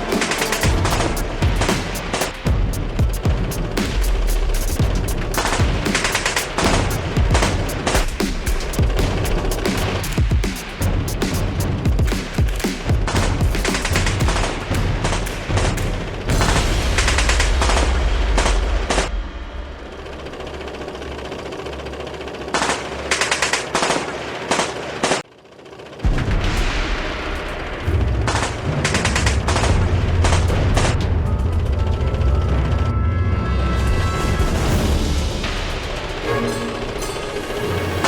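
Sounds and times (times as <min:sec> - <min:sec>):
background music: 0:00.0 - 0:17.9, 0:29.6 - 0:38.0
machine-gun fire: 0:00.0 - 0:19.7
low rumble: 0:26.1 - 0:38.0.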